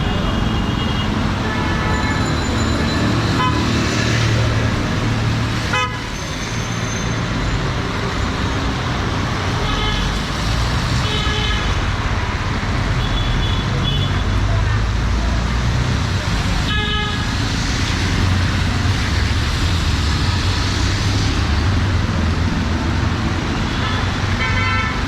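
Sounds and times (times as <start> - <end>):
street traffic: 0.0 - 25.0
vehicle horns honking: 3.3 - 3.7, 5.7 - 6.2, 23.7 - 25.0.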